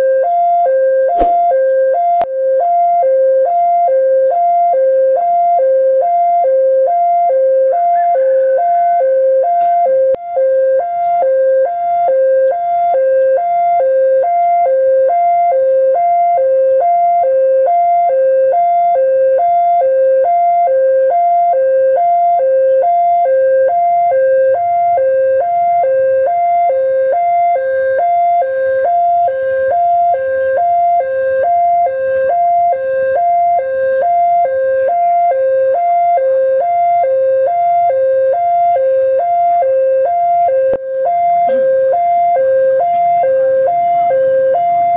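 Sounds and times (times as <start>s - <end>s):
level crossing two-tone alarm: 0.0s - 44.9s.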